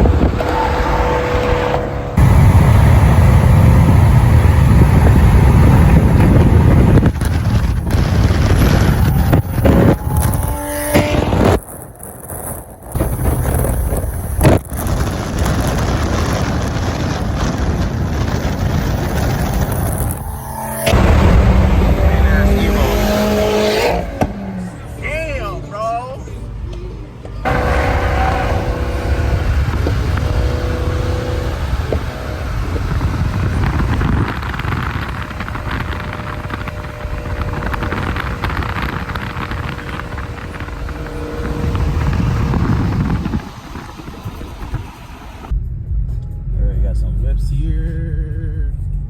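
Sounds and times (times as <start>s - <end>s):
car road and wind noise: 0.0s - 49.0s.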